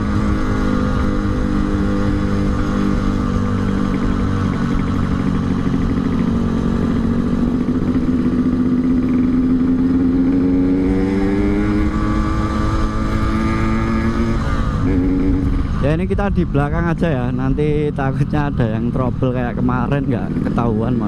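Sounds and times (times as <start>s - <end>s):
low wind: 0.0s - 21.0s
motorcycle engine running: 0.0s - 21.0s
road rumble: 0.0s - 21.0s.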